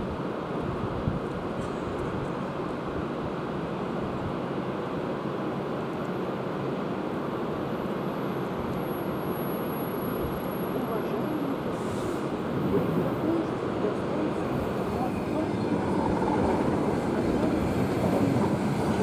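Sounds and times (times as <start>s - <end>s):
train coaches rolling on rails: 7.8s - 19.0s.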